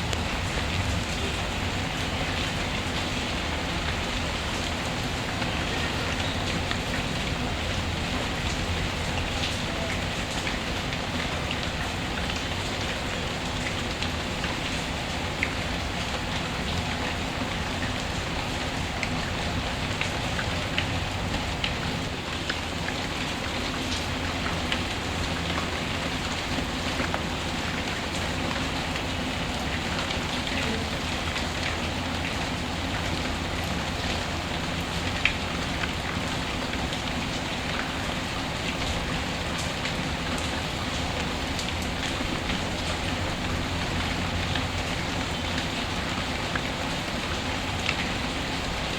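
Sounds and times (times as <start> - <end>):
steady rainfall: 0.0 - 48.9.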